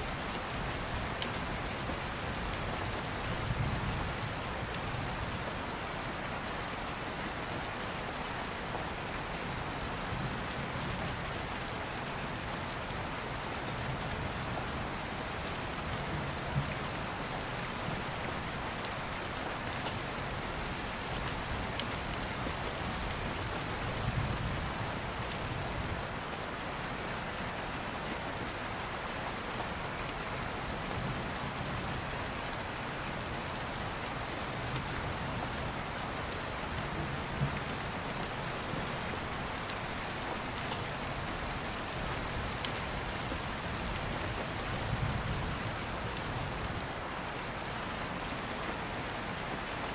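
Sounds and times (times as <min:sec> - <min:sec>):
rain falling: 0:00.0 - 0:49.9.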